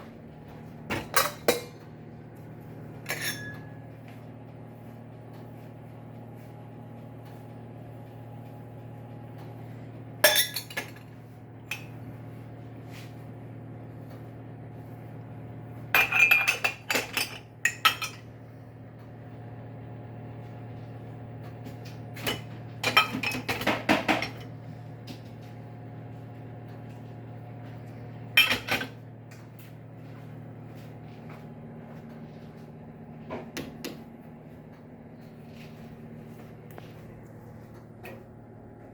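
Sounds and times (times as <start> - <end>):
steady low hum: 0.0 - 38.9
dishes and cutlery clinking: 3.0 - 3.8, 10.2 - 11.1, 16.0 - 18.2.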